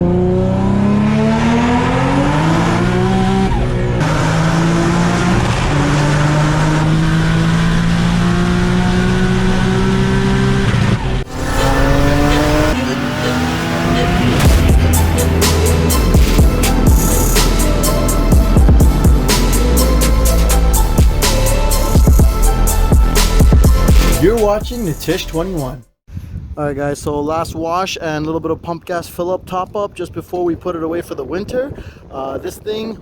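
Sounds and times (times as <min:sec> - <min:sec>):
car engine accelerating: 0:00.0 - 0:25.8.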